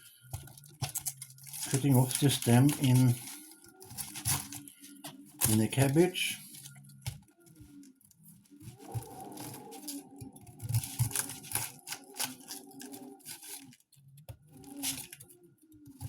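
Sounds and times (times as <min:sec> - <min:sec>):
knife cutting cabbage crunching: 0:00.2 - 0:07.2, 0:08.8 - 0:13.8, 0:14.6 - 0:15.3.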